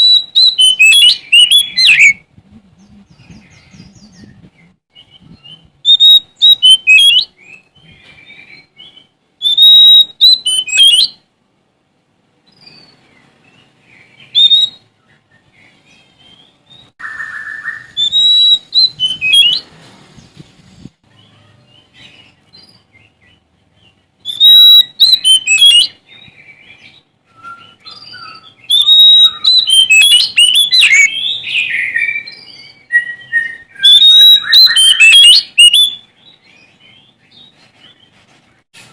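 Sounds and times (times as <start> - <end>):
magpie-robin singing whistled phrases: 0.0 - 2.2, 2.8 - 11.2, 13.6 - 19.6, 24.2 - 38.0.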